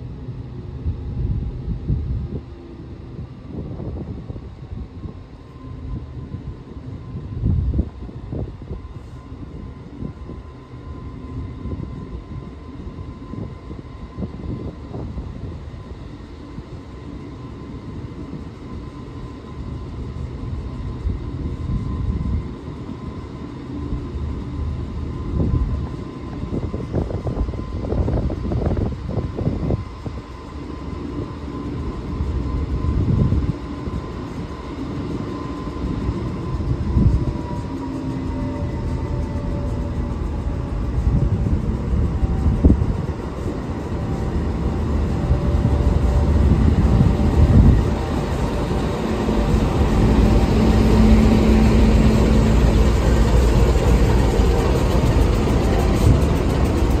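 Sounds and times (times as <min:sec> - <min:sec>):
steady high whine: 0:00.0 - 0:57.0
locomotive engine rumbling: 0:35.3 - 0:57.0.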